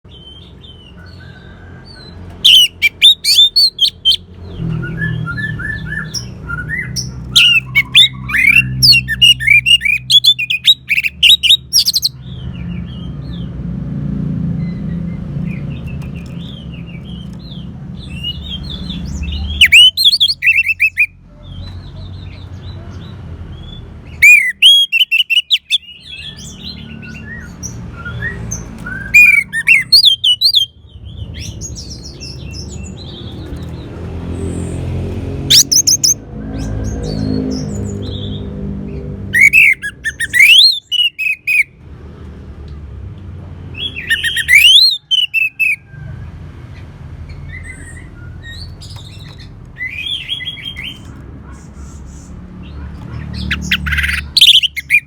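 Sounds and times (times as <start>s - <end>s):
thrush singing: 35.4s - 36.2s.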